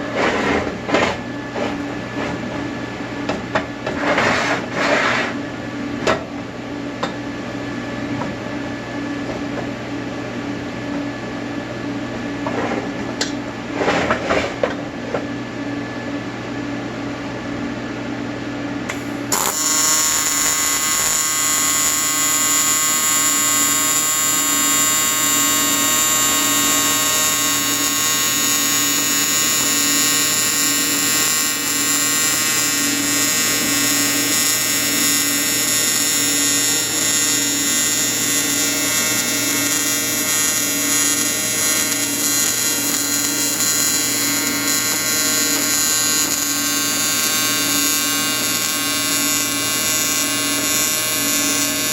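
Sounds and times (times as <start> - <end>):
welding arc buzzing: 18.9 - 51.9
welding machine hum: 18.9 - 51.9.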